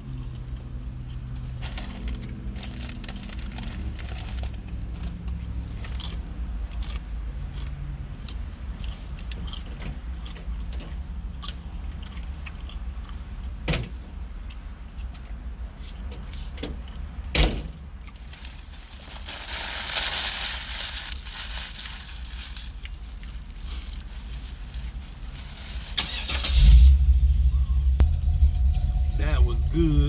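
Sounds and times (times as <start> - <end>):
chewing clicks and smacks: 5.3 - 13.6
steady low rumble: 26.4 - 30.0.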